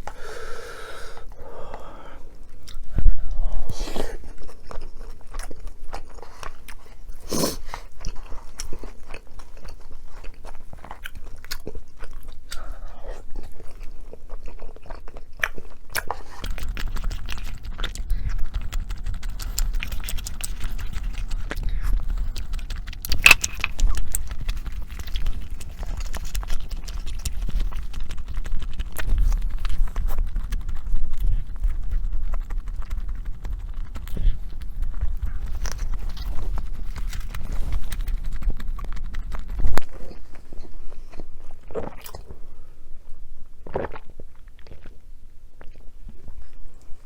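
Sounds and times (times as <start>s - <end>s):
person chewing food: 0.0s - 45.0s, 45.6s - 47.0s
low rumble: 16.4s - 40.7s.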